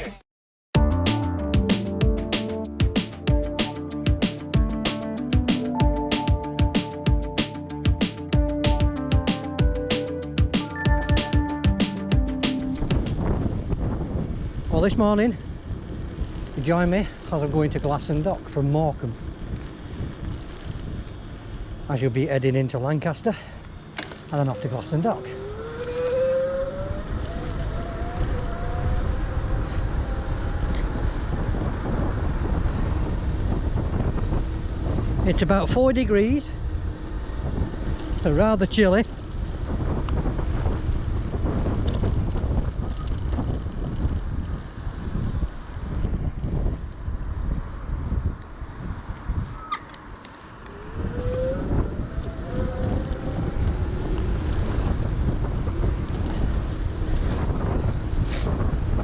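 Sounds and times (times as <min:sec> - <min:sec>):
wind buffeting microphone: 0:12.9 - 0:22.1, 0:24.3 - 0:59.0.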